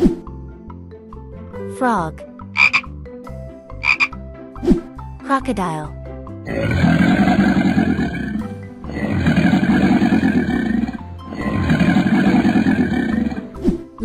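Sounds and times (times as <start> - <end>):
background music: 0.0 - 14.0
animal growls: 6.5 - 13.6.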